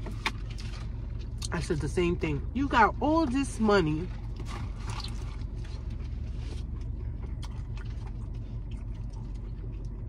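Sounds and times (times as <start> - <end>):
low hum inside a car: 0.0 - 10.0
chewing with wet mouth clicks: 6.7 - 10.0.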